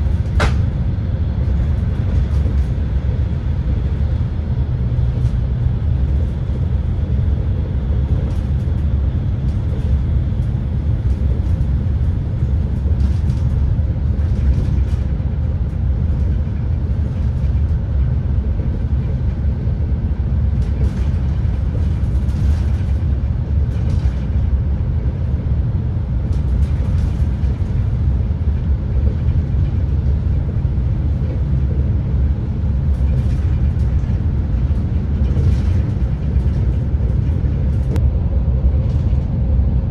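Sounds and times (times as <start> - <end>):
train rumbling at speed: 0.0 - 39.9.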